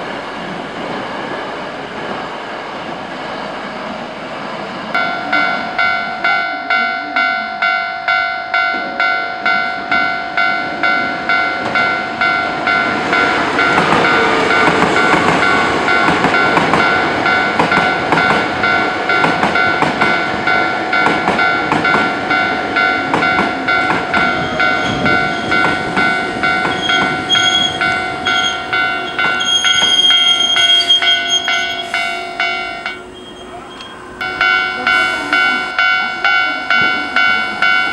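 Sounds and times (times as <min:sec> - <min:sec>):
crossing warning bell dinging: 0:03.4 - 0:37.9
train wheels clacking over rails: 0:09.5 - 0:33.1
high squeal: 0:26.6 - 0:34.2.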